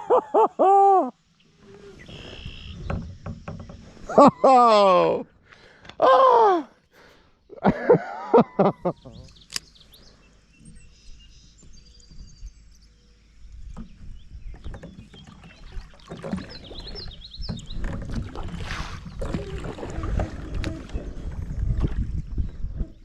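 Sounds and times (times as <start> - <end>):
bird chirping: 1.4 - 4.4, 8.4 - 18.1
knocks and rubbing on a boat: 2.6 - 4.3, 13.6 - 23.0.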